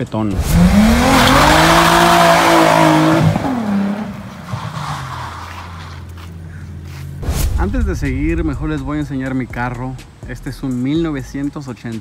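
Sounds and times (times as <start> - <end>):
engine revving hard: 0.3 - 4.3.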